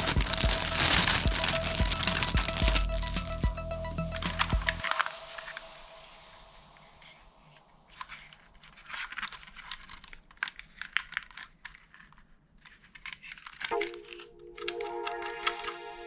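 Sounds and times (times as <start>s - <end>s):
music with pulsing tone: 0.0s - 7.3s, 13.7s - 16.0s.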